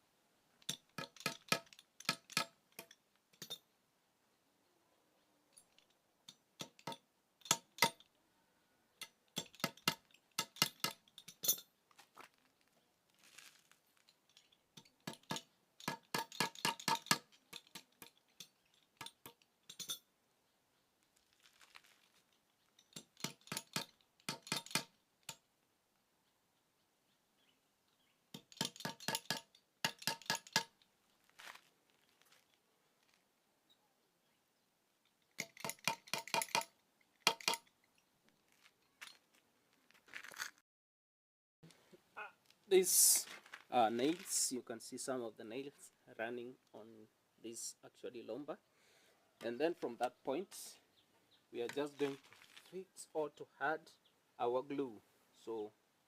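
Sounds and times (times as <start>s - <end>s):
hammer striking nails into timber: 23.1s - 24.9s, 28.4s - 30.7s, 35.4s - 37.6s.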